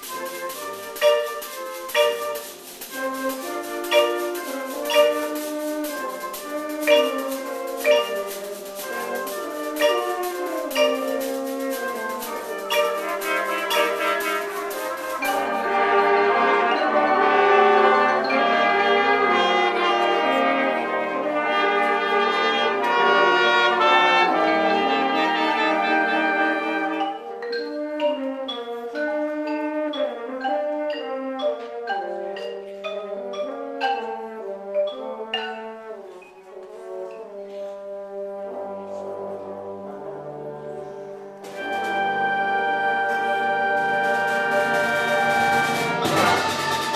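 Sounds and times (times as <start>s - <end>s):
brass band music: 0.0s - 46.9s
mallet percussion notes: 0.0s - 46.9s.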